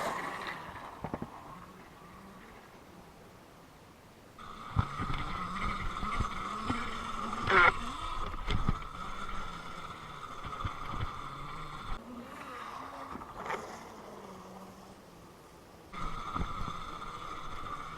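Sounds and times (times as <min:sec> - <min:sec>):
low hum: 0:00.0 - 0:17.9
electric motor whining: 0:04.4 - 0:15.0, 0:15.9 - 0:17.9.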